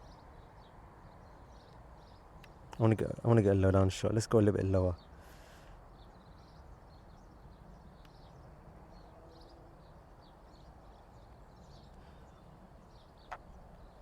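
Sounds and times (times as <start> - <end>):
distant road traffic rumble: 0.0 - 14.0
small birds chirping: 0.0 - 14.0.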